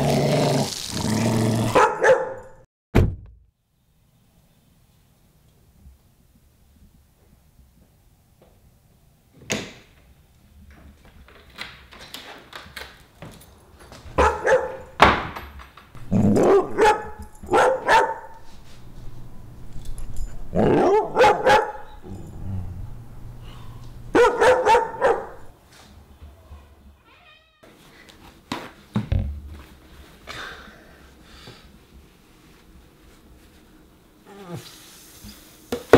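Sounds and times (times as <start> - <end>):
dog barking: 1.7 - 2.5, 14.2 - 14.9, 16.3 - 18.4, 20.5 - 22.0, 24.1 - 25.5.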